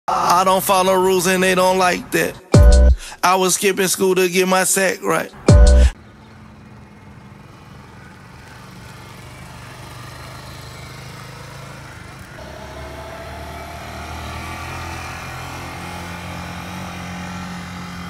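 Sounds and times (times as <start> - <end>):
motorcycle engine pulling away: 6.2 - 18.0.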